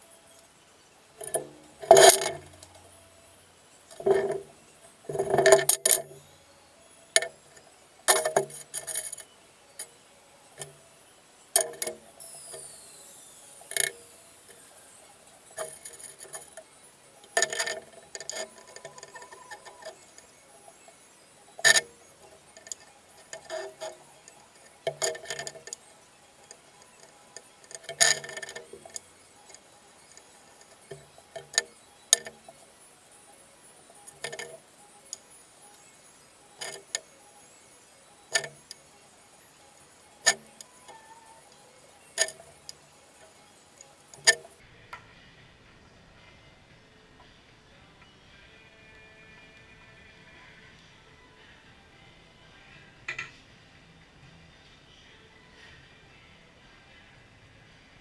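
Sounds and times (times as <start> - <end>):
metallic clinks and knocks: 1.2 - 3.2, 3.9 - 6.3, 7.2 - 10.0, 11.6 - 12.8, 13.6 - 44.6.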